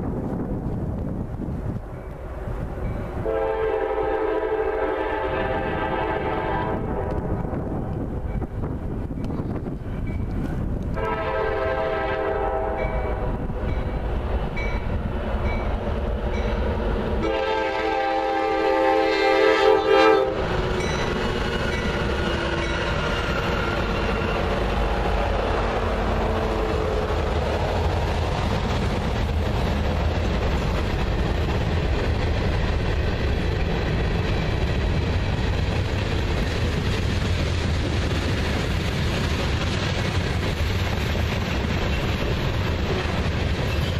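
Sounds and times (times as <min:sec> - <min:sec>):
train passing with rumble: 0:00.0 - 0:43.9
locomotive air horn: 0:03.2 - 0:07.3, 0:10.9 - 0:13.4, 0:17.2 - 0:20.6, 0:25.4 - 0:27.2.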